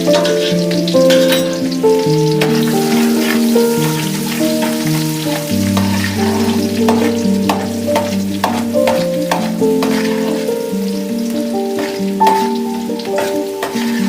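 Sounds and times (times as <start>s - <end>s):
fish frying in hot oil: 0.0s - 14.0s
slow instrumental music: 0.0s - 14.0s
utensil clicking against pan: 4.6s - 10.6s, 11.3s - 14.0s.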